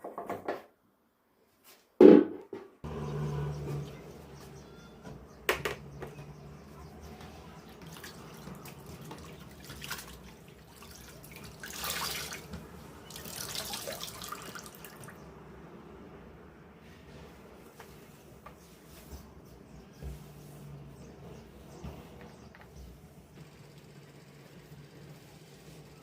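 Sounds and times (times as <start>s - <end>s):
tap water running into sink: 7.8s - 15.1s.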